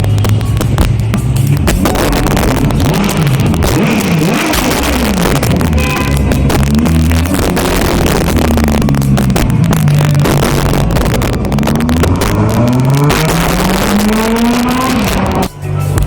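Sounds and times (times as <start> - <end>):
sports car engine accelerating: 0.0 - 16.0.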